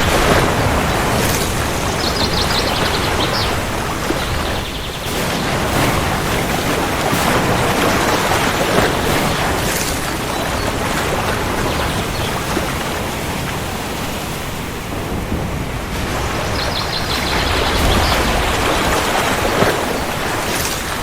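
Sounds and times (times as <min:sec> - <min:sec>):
steady rain: 0:00.0 - 0:21.0
low rumble of thunder: 0:14.9 - 0:20.1.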